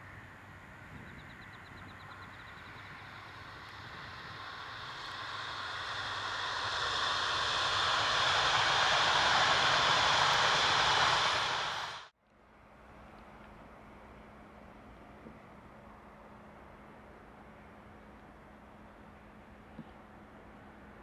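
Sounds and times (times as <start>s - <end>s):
high-speed train approaching: 1.4s - 12.1s.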